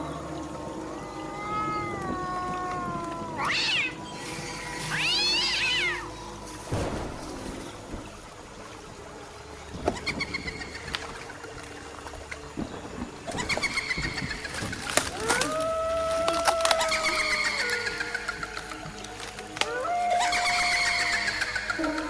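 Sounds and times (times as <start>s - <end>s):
cat-like animal calls: 0.8s - 6.2s, 13.3s - 18.9s, 19.6s - 22.0s.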